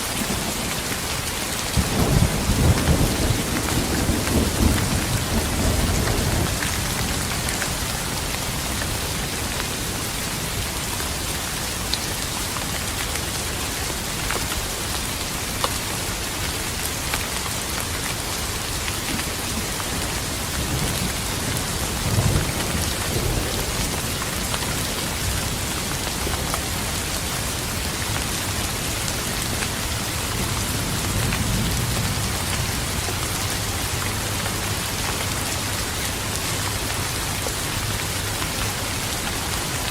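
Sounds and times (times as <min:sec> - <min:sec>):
heavy rain pattering: 0:00.0 - 0:39.9
low thunder rumbling: 0:01.7 - 0:10.0, 0:20.6 - 0:26.9.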